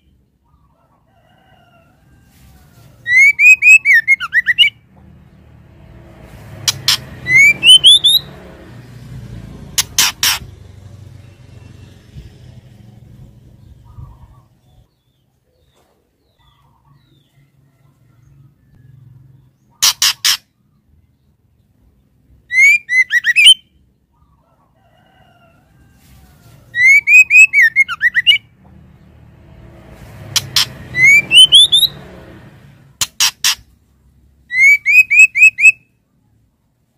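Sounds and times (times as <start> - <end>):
bird whistled calls: 3.0 - 4.8, 6.7 - 8.3, 22.5 - 23.8, 26.7 - 28.5, 30.4 - 32.0, 34.5 - 35.9.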